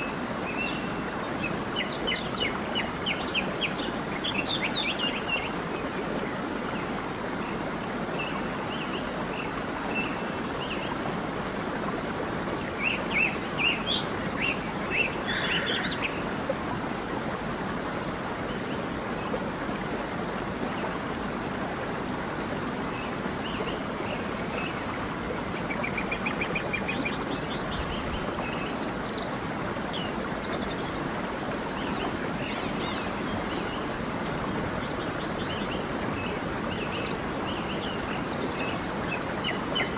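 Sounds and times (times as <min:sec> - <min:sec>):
flowing stream: 0:00.0 - 0:39.9
birds chirping: 0:23.5 - 0:39.9.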